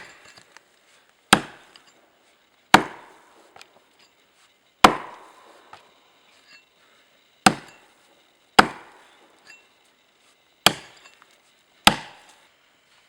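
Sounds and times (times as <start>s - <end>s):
axe chopping wood: 0.0s - 0.5s, 1.3s - 1.9s, 2.7s - 3.7s, 4.8s - 5.8s, 7.4s - 7.8s, 8.6s - 9.1s, 10.6s - 12.4s.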